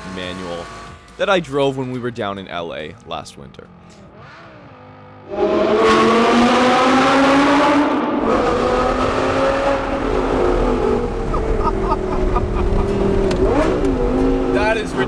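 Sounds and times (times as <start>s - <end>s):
sports car engine accelerating: 3.9s - 15.0s.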